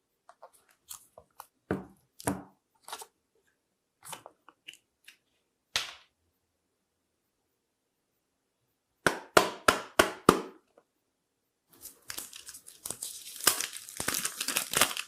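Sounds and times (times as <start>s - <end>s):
packaging crinkling and tapping: 12.0s - 15.0s.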